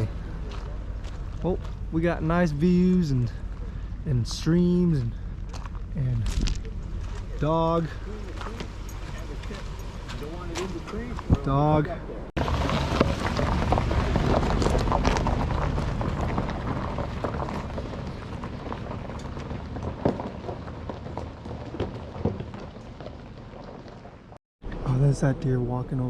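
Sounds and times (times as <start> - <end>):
rain falling: 12.4 - 24.4.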